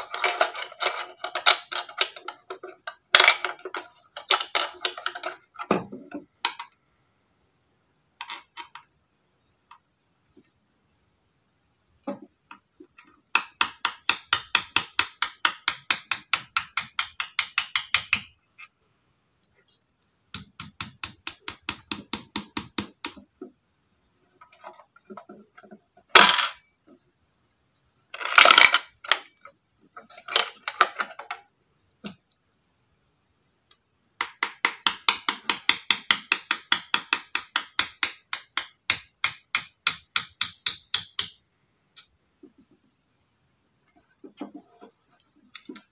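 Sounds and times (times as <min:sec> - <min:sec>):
plastic rattles: 0:00.0 - 0:06.8, 0:08.2 - 0:08.9, 0:28.1 - 0:31.5
sharp plastic knocks: 0:12.0 - 0:18.4, 0:20.3 - 0:23.6, 0:34.2 - 0:41.4.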